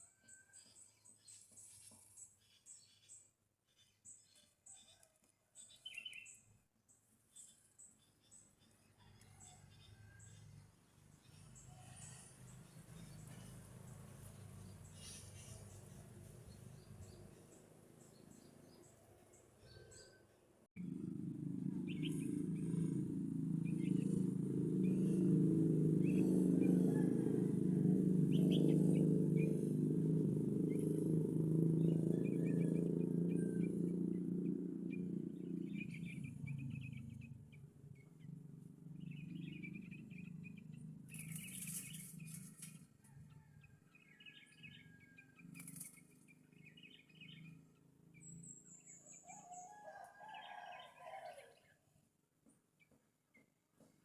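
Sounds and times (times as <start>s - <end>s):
bird chirps: 5.6s - 6.5s, 21.7s - 25.4s, 31.8s - 49.8s
loud low rumble: 20.8s - 37.1s.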